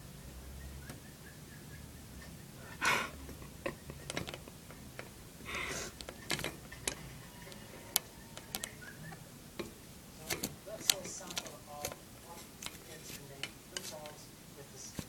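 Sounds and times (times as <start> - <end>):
budgie clicks and taps: 3.2 - 5.2, 5.9 - 14.2.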